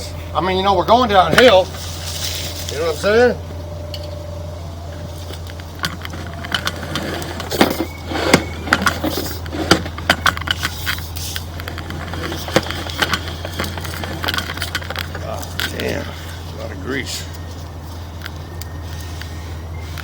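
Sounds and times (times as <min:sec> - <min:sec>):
steady low hum: 0:00.0 - 0:20.0
cable clicking and clattering: 0:05.0 - 0:16.4.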